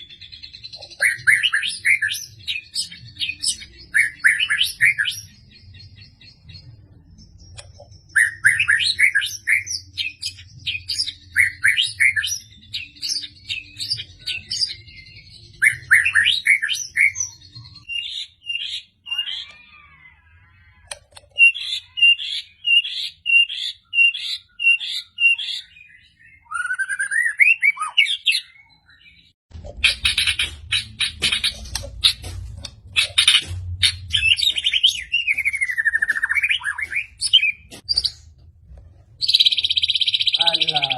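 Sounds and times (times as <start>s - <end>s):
bird singing whistled phrases: 8.1s - 20.0s, 21.4s - 29.3s, 34.1s - 38.2s.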